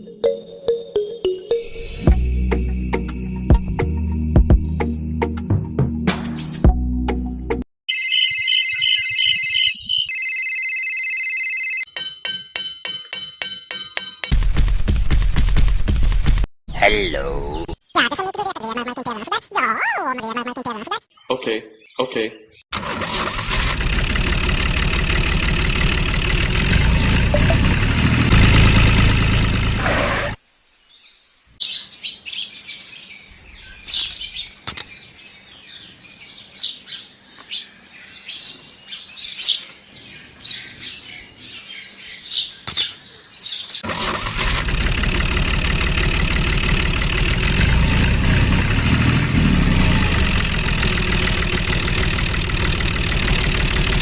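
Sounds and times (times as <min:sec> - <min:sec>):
birds chirping: 0:16.7 - 0:18.2, 0:20.2 - 0:22.7, 0:29.8 - 0:43.8.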